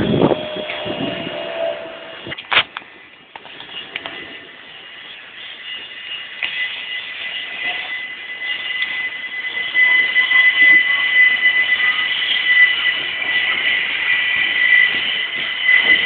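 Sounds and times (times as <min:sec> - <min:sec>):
train running: 0:00.0 - 0:16.0
train wheels squealing: 0:00.0 - 0:16.0.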